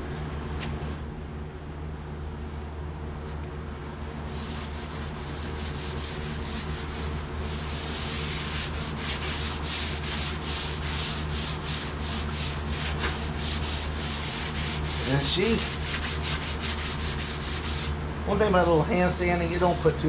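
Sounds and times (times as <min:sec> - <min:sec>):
sandpaper rubbing on sheet metal: 0:04.0 - 0:20.0.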